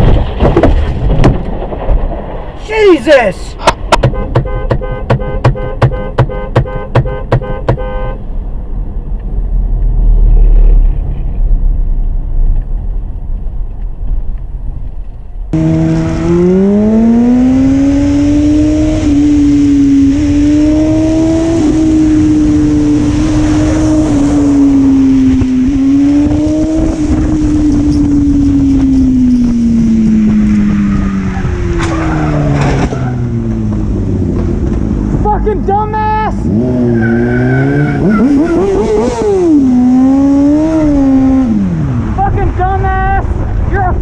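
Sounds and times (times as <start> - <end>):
road and wind noise: 0.0 - 44.0
car horn beeps: 3.6 - 8.3
vehicle engine revving: 9.3 - 12.8, 15.5 - 35.3, 36.3 - 42.2.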